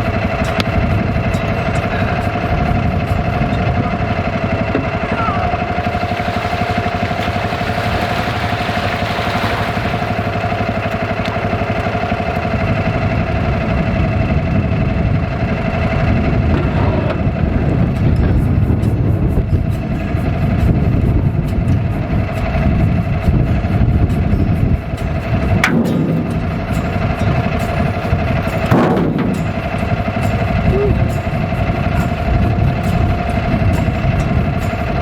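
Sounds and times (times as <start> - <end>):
engine running steadily: 0.0 - 35.0.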